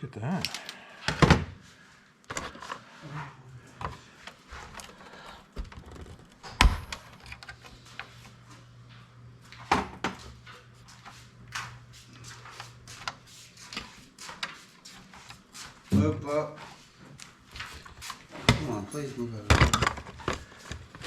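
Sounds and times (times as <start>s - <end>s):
tools and computer parts clattering: 4.6s - 7.7s, 17.7s - 21.0s.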